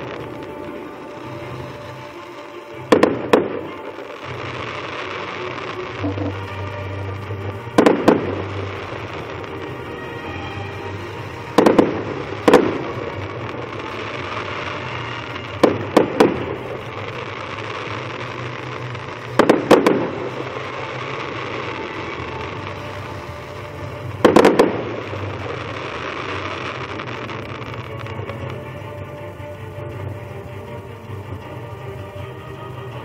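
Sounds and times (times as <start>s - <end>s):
firework bangs: 0.0s - 33.0s.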